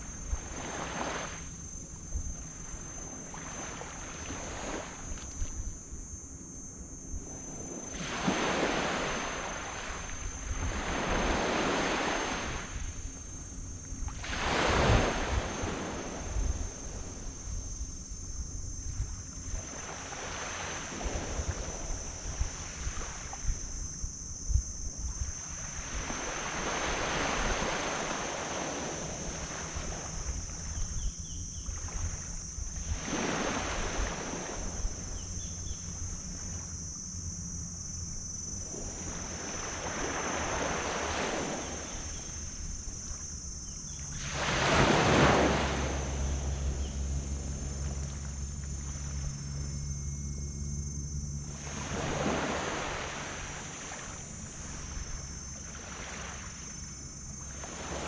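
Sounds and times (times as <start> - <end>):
ocean waves breaking: 0.0 - 1.8, 7.5 - 12.9, 14.0 - 17.3, 19.5 - 23.3, 25.7 - 30.8, 31.7 - 35.1, 38.6 - 43.4, 44.0 - 49.4, 51.5 - 58.0
low steady hum: 0.0 - 58.0
wind rumbling on microphone: 0.0 - 58.0.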